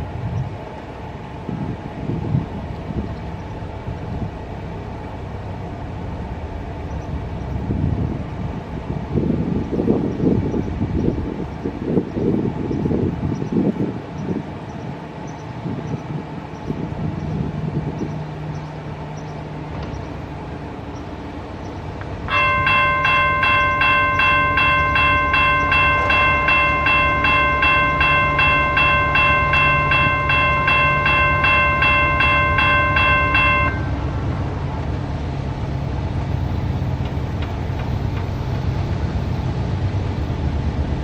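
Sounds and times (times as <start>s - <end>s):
freight train rumbling past: 0.0s - 41.0s
bell ringing: 22.3s - 34.1s.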